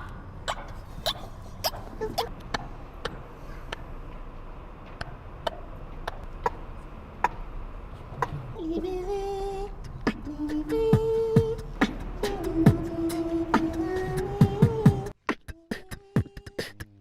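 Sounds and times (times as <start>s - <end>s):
beatboxing mouth clicks: 0.4s - 3.9s, 5.4s - 6.6s, 8.2s - 8.9s, 9.7s - 17.0s
hummed melody: 8.2s - 16.7s.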